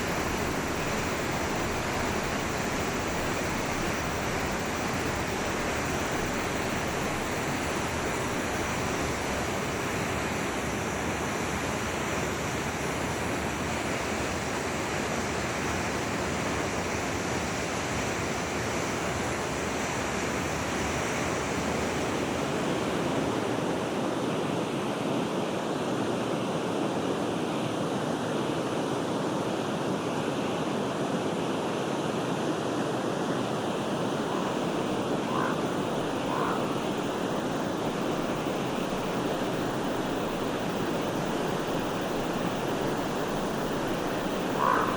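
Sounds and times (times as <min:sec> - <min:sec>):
forest stream rushing: 0:00.0 - 0:44.9.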